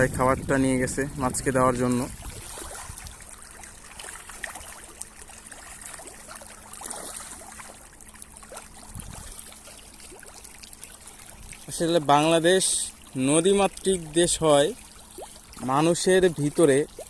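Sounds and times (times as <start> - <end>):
small water splashes: 1.4 - 17.0.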